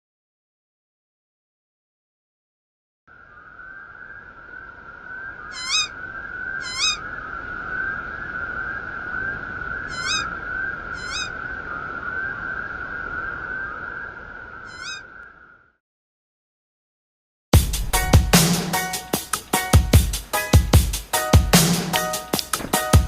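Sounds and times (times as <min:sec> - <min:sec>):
short rising bird calls: 0:03.2 - 0:15.8
high wavering bird trill: 0:05.1 - 0:07.2, 0:09.2 - 0:11.6, 0:14.6 - 0:15.4.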